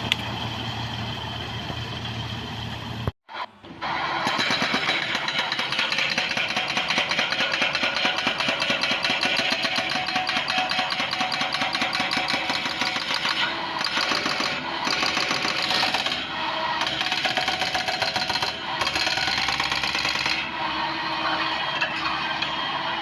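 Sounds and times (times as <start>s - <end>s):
heavy machinery hammering clatter: 4.1s - 20.7s.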